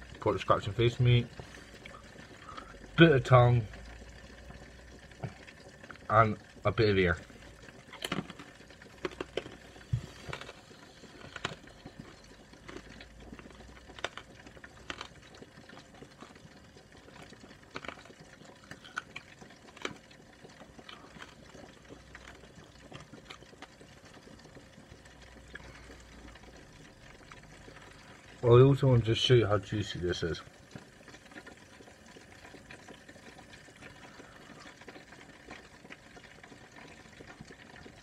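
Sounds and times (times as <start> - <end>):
person chewing food: 7.4 - 28.3, 31.1 - 37.9.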